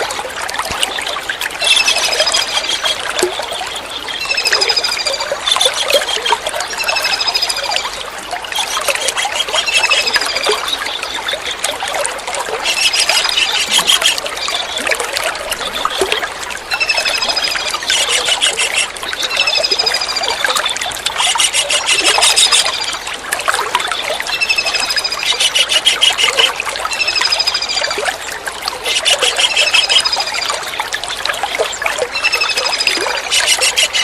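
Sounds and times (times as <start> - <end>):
trickle of running water: 0.0 - 34.0
kingfisher piping calls: 1.6 - 3.0, 8.6 - 10.6, 12.6 - 14.9, 16.7 - 22.8, 24.3 - 27.8, 28.8 - 30.4, 32.2 - 34.0.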